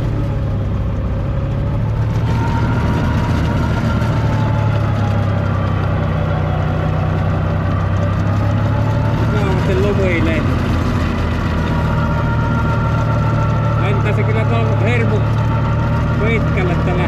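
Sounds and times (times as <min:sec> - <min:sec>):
faint wandering whine: 0:00.0 - 0:17.0
tractor engine running: 0:00.0 - 0:17.0.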